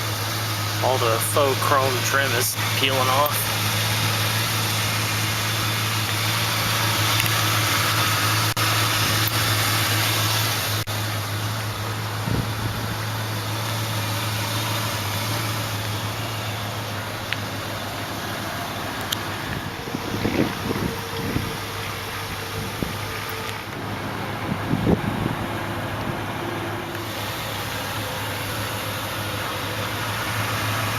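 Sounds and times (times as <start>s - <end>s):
car engine idling: 0.0s - 30.9s.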